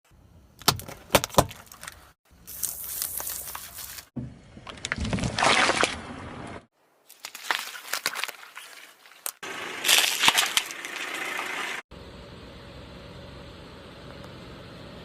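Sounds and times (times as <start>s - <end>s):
objects crushed under car tyres: 9.8s - 11.0s.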